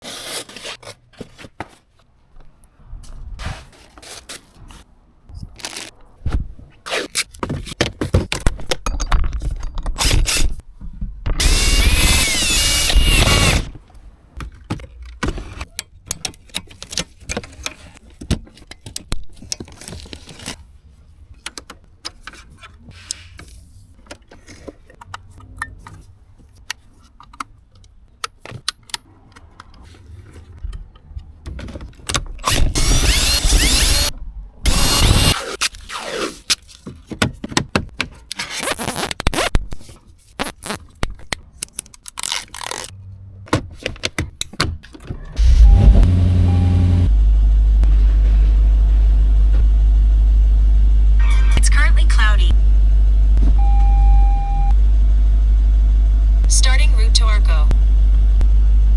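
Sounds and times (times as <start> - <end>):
power driver whirring: 11.4 - 13.8, 32.4 - 34.1, 34.7 - 35.4, 45.4 - 47.2.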